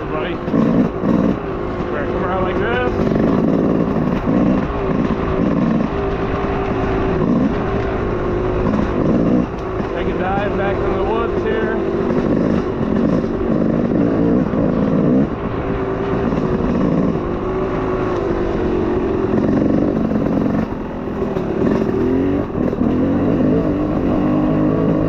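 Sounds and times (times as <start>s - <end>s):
off-road vehicle engine revving: 0.0s - 25.0s.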